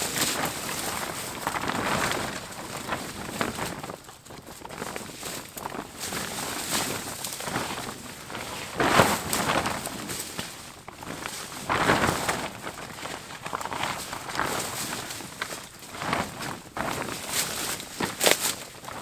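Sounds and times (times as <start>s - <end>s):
rustling dry leaves: 0.0s - 19.0s
loud crunches: 18.0s - 19.0s.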